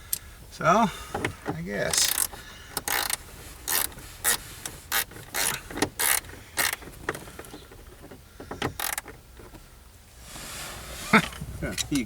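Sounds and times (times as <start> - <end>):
ratchet wrench strokes: 1.9 - 6.8.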